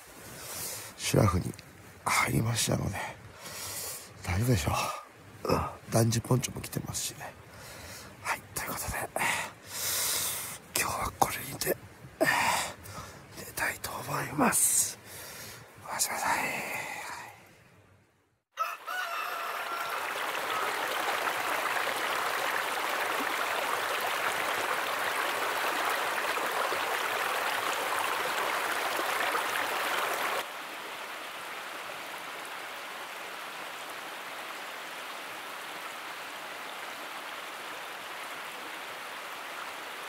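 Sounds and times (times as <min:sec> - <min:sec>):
stream rushing over rocks: 0:00.0 - 0:15.1, 0:19.3 - 0:40.0
distant river rush: 0:00.0 - 0:17.4, 0:19.2 - 0:40.0
rooster crowing: 0:18.5 - 0:21.1.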